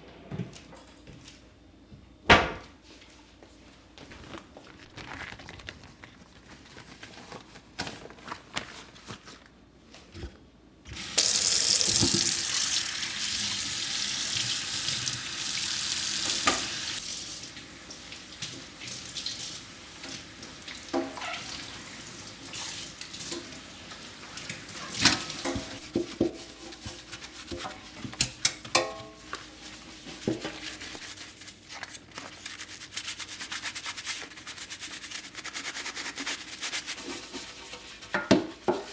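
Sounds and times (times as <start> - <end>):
tap water running into sink: 11.0 - 25.9.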